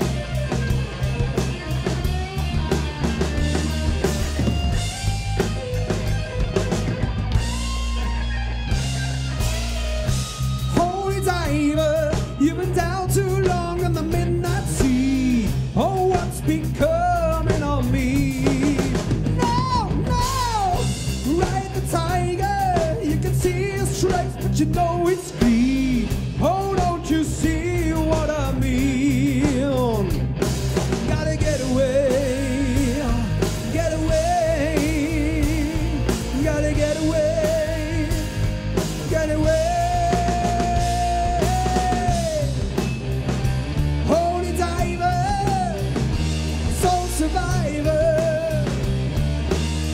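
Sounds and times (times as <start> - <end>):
rock band playing: 0.0 - 49.9
man singing: 10.6 - 30.3, 31.0 - 42.7, 44.0 - 46.0, 46.6 - 48.9.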